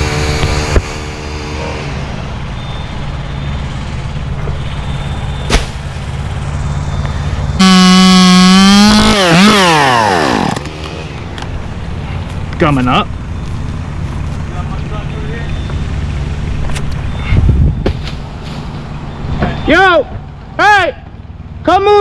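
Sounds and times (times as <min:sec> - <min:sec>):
chainsaw idling and revving: 0:00.0 - 0:02.2, 0:07.3 - 0:11.7
sharp knock: 0:05.5 - 0:05.8.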